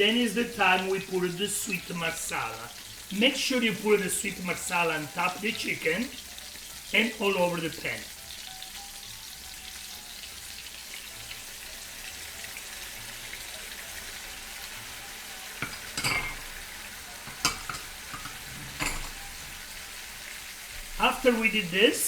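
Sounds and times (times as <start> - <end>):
food sizzling in a frying pan: 0.0 - 22.0
knocks and clinks: 15.6 - 16.5, 17.3 - 19.3.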